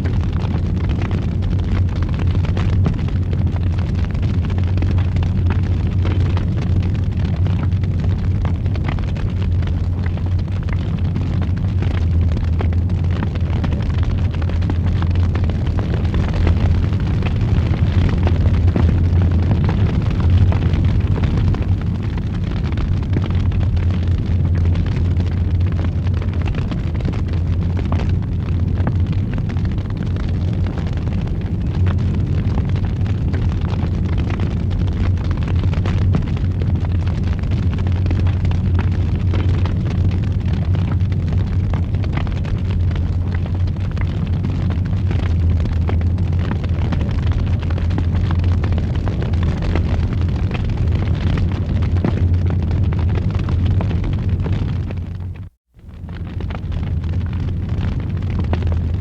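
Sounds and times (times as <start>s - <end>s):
fire crackling and popping: 0.0s - 59.0s
fire roaring in fireplace: 0.0s - 59.0s.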